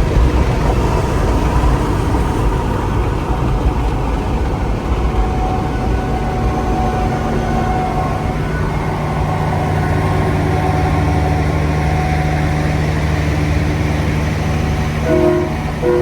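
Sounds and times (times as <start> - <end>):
heavy diesel engine running: 0.0 - 16.0
multi-note air horn blast: 15.0 - 16.0.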